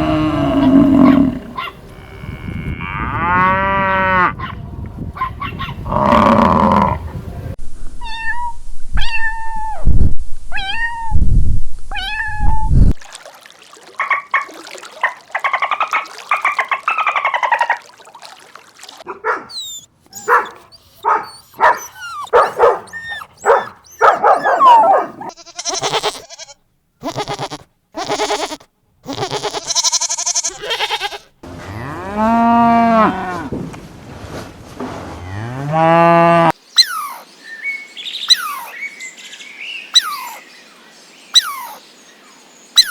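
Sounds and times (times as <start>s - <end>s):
long cow moos: 0.0s - 4.4s
varied animal calls and clicks: 14.0s - 18.0s.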